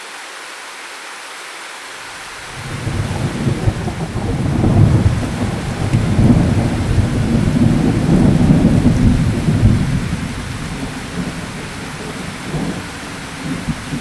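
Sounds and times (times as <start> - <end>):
rain hissing: 0.0 - 14.0
low roll of thunder: 2.5 - 14.0.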